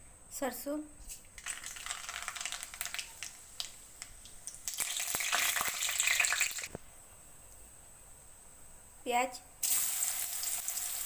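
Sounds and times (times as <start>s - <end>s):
seeds crackling in hot oil: 1.0s - 7.7s, 9.6s - 11.0s.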